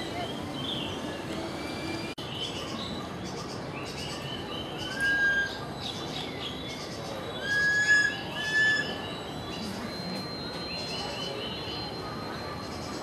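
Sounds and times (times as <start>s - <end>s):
birds chirping: 0.0s - 13.0s
bird whistle: 4.2s - 6.5s, 7.1s - 9.7s.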